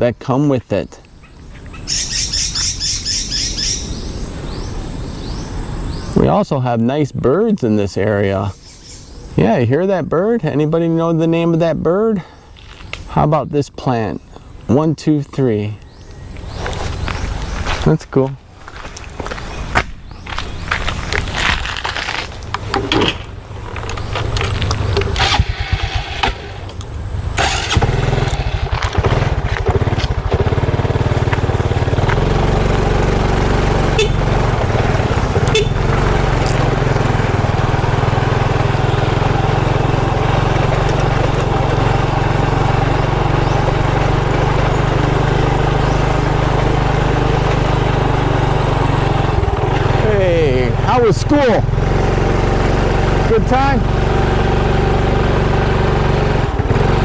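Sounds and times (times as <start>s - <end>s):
motorcycle engine starting and running: 15.4s - 17.8s, 18.6s - 57.0s
handling noise: 18.5s - 50.0s.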